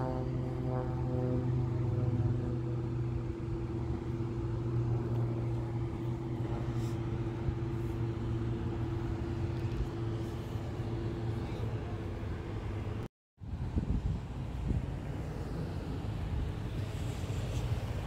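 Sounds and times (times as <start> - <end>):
vehicle engine idling: 0.0 - 13.1.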